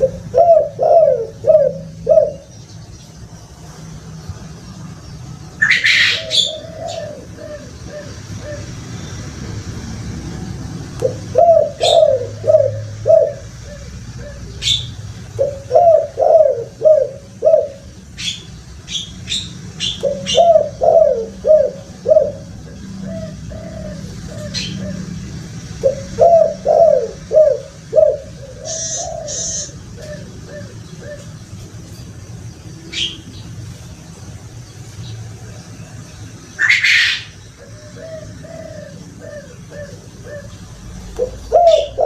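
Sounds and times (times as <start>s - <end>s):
dove cooing: 0.0s - 2.5s, 5.6s - 8.9s, 10.3s - 31.6s, 36.6s - 42.0s
steady low hum: 0.0s - 42.0s
small bird chirping: 11.0s - 42.0s.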